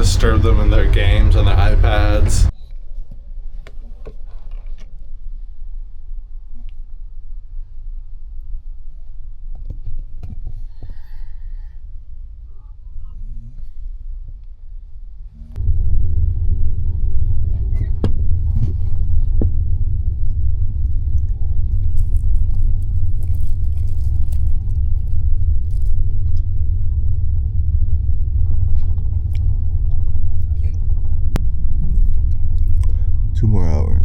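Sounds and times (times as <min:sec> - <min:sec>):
train rumbling: 0:00.0 - 0:02.5, 0:15.3 - 0:34.0.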